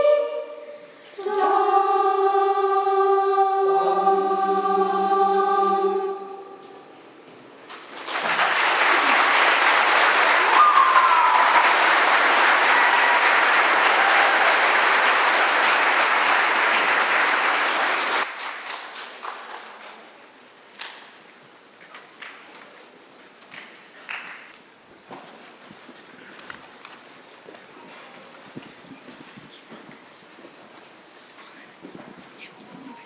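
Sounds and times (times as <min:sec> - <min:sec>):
choir holding a chord: 0:00.0 - 0:07.1
audience applauding: 0:07.6 - 0:20.1.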